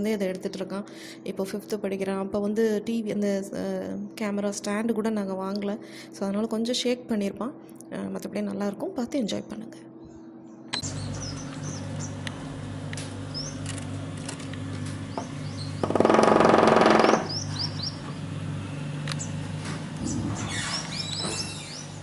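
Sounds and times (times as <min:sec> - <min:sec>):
steady low hum: 0:00.0 - 0:22.0
small birds chirping: 0:10.0 - 0:14.0, 0:14.9 - 0:16.0, 0:17.0 - 0:18.4, 0:19.0 - 0:22.0.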